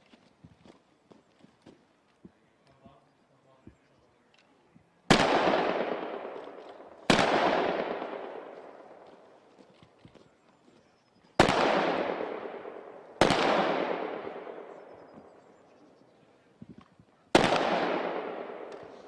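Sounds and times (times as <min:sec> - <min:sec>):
rifle shots with echo: 0:05.1 - 0:09.5, 0:11.4 - 0:15.7, 0:17.3 - 0:19.0.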